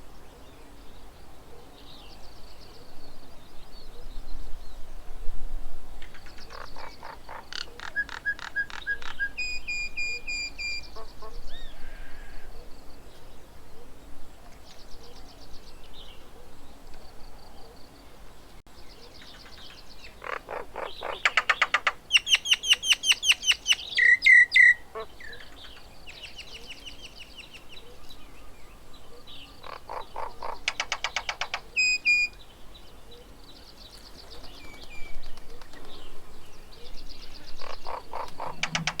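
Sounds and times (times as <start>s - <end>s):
birds chattering: 6.2s - 12.6s, 18.7s - 39.0s.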